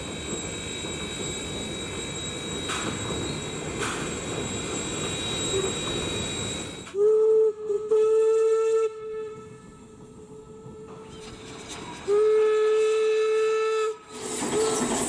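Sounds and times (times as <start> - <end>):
steam locomotive rumble and hiss: 0.0 - 15.0
steam whistle blast: 5.3 - 5.9, 6.9 - 9.8, 12.0 - 15.0.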